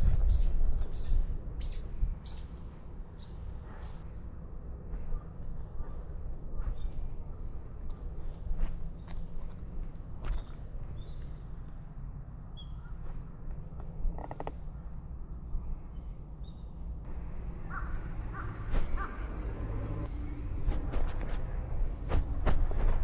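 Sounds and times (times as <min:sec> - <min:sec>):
steady low rumble: 0:00.0 - 0:23.0
crow cawing: 0:17.6 - 0:19.4.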